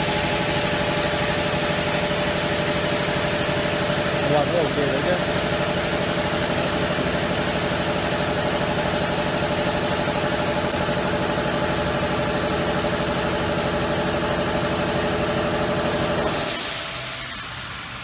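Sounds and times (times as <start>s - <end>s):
hiss: 16.2s - 18.0s.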